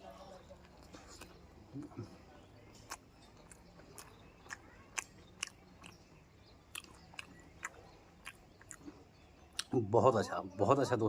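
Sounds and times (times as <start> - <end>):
chewing crisp fried food: 0.0 - 9.8
mouth clicks: 0.9 - 9.8.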